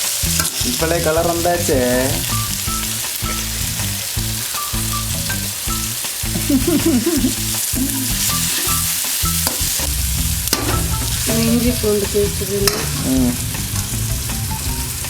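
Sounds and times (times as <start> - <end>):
food sizzling in a pan: 0.0 - 15.0
spoon stirring: 0.2 - 9.9.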